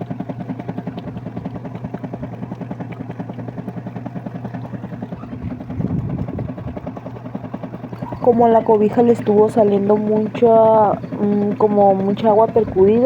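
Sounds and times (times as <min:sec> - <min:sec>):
washing machine pulsing hum: 0:00.0 - 0:13.0.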